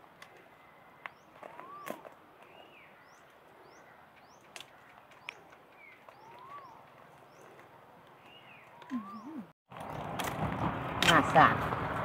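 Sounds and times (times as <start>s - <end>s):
high rising bird chirp: 1.1s - 4.5s, 5.2s - 7.5s, 8.2s - 9.5s
slurred whistled bird notes: 1.5s - 2.9s, 5.8s - 6.9s, 8.3s - 9.5s.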